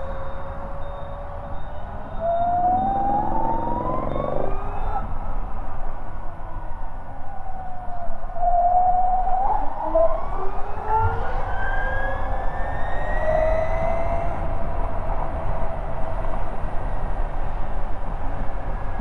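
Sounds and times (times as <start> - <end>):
road and wind rumble: 0.0 - 19.0
electric scooter motor whining: 2.6 - 4.8.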